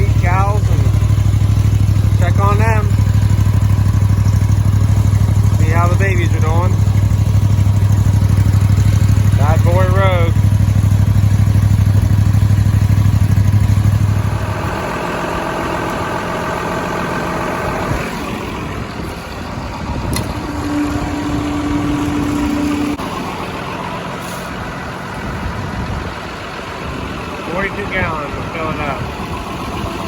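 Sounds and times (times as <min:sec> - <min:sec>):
vehicle engine running: 0:00.0 - 0:30.0
brief steady tone: 0:20.1 - 0:23.3.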